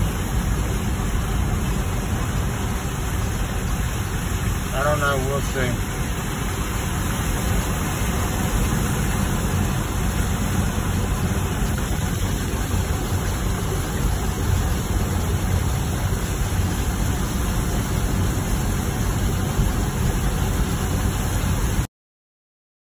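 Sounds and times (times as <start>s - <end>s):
car driving rumble and hiss: 0.0s - 21.9s.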